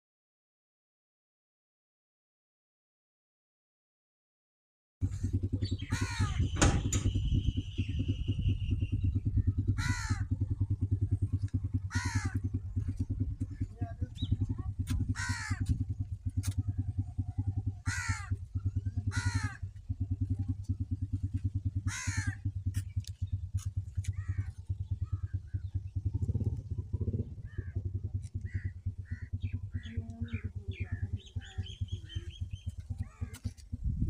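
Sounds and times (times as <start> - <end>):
diesel tractor engine idling: 5.0 - 34.0
small bird chirping: 5.5 - 9.7, 28.2 - 33.6
crow cawing: 5.9 - 6.5, 9.7 - 10.4, 11.8 - 12.6, 15.1 - 15.9, 17.8 - 18.4, 19.0 - 19.7, 21.8 - 22.5, 24.1 - 25.4, 27.4 - 27.8, 28.4 - 32.4, 33.0 - 33.5.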